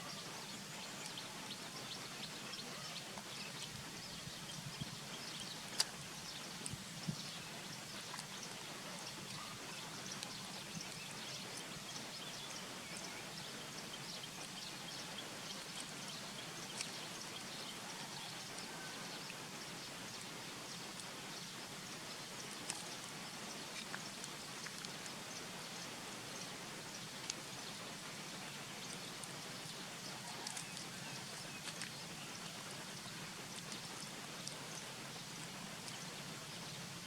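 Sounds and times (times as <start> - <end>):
outdoor background hiss: 0.0 - 37.0.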